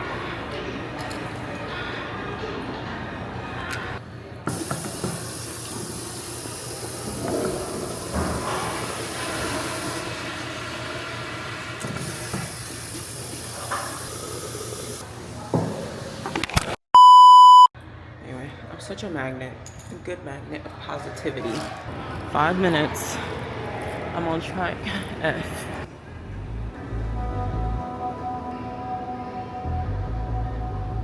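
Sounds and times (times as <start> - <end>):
electronic beep: 17.0 - 17.7.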